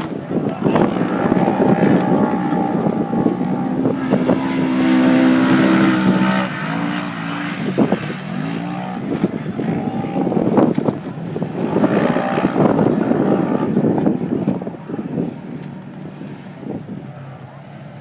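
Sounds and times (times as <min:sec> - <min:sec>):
engine revving at high revs: 0:00.6 - 0:14.2.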